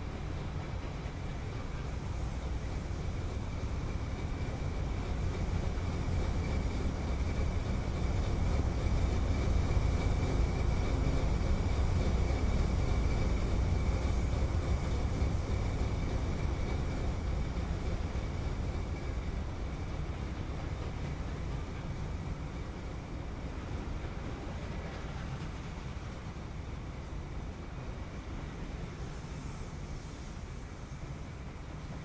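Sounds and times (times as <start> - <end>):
freight train rumbling past: 0.0 - 32.0.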